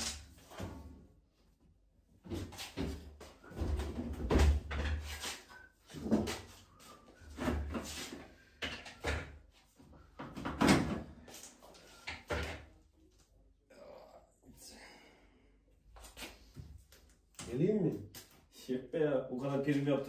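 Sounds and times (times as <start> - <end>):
knocks and clunks on washing machine: 10.2 - 11.1.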